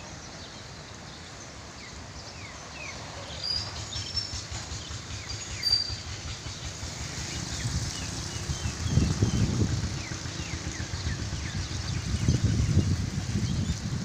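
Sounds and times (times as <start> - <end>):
birds chirping: 0.0 - 14.0
gusty wind buffeting microphone: 3.6 - 14.0.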